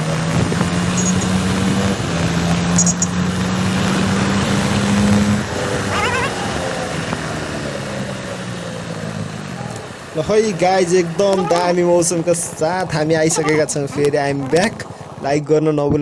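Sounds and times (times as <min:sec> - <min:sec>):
motorcycle engine running: 0:00.0 - 0:15.4
wind and road noise: 0:00.0 - 0:16.0
wavering high-pitched squeal: 0:05.8 - 0:07.0.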